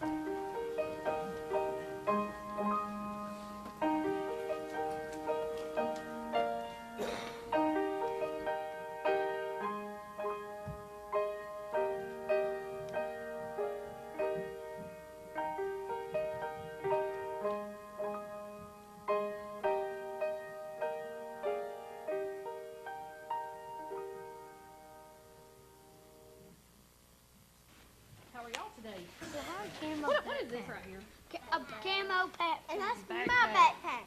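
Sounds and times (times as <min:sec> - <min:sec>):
slow gentle piano piece: 0:00.0 - 0:26.8.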